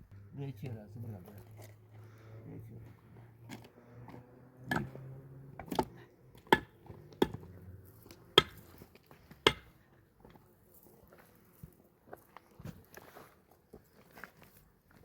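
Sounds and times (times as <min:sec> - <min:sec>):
sharp blows on wood: 0:08.4 - 0:08.7, 0:09.4 - 0:09.7.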